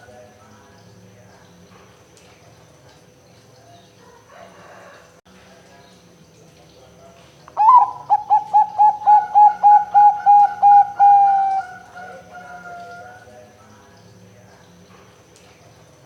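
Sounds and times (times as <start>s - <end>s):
dove cooing: 7.6s - 13.3s.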